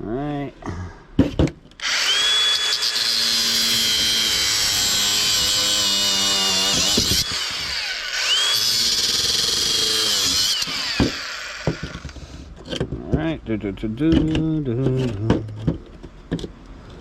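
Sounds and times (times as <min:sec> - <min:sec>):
power tool whining: 0:01.8 - 0:12.4.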